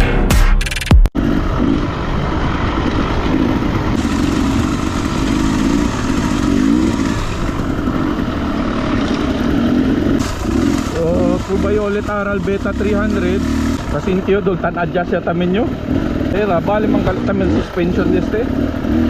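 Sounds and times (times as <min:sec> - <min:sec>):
music: 0:00.0 - 0:01.1
dirt bike engine revving: 0:01.2 - 0:19.0.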